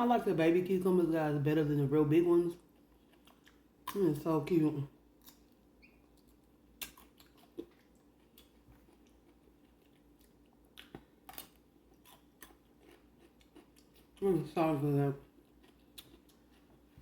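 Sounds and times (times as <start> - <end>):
quiet chewing: 2.6 - 4.0, 5.2 - 14.2, 15.2 - 17.0
cucumber crunching: 6.2 - 14.4, 15.2 - 17.0.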